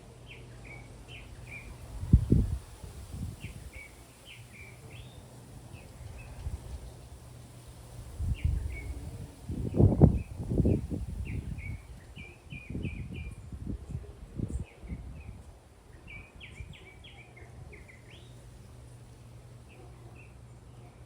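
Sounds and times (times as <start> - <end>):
bird chirping: 0.3 - 2.6, 3.4 - 7.1, 14.5 - 18.4
wind buffeting microphone: 1.3 - 4.0, 7.9 - 16.8.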